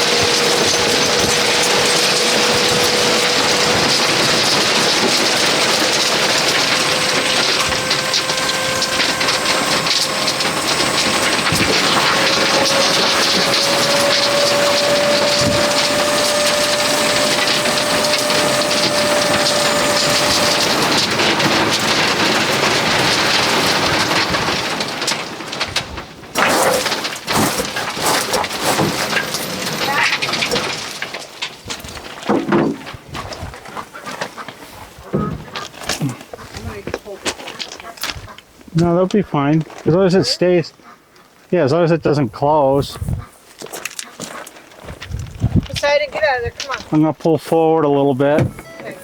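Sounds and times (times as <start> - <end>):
higher whine: 0.0 - 22.0, 48.4 - 49.0
gravel pouring from trailer: 0.0 - 34.0
faint constant whine: 0.0 - 49.0.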